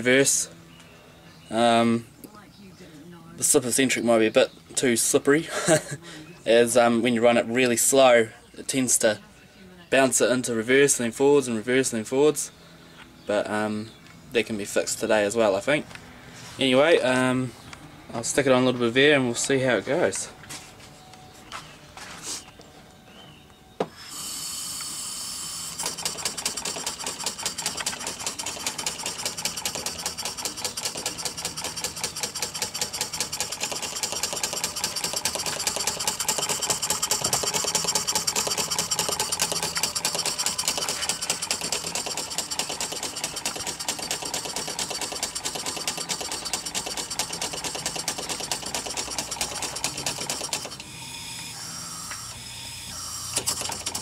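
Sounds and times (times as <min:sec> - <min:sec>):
model steam engine chuffing: 0:25.1 - 0:50.8.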